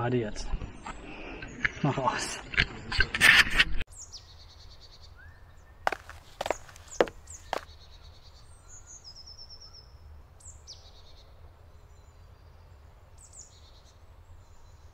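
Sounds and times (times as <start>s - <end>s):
songbirds chirping: 0.0s - 3.0s, 3.9s - 14.9s.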